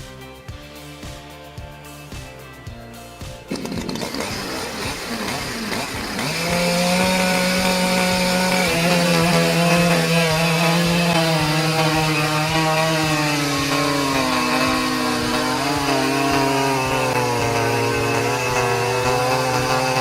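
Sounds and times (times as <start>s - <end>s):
chainsaw engine at high speed: 3.4s - 20.0s.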